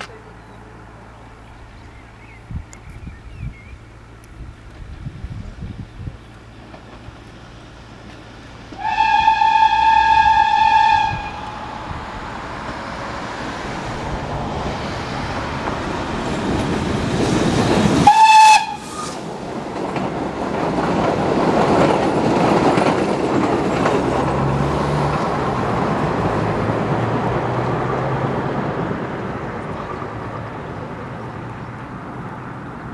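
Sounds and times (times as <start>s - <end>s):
passing train rumble: 0.0s - 32.9s
train whistle blast: 8.8s - 12.0s, 18.0s - 19.2s.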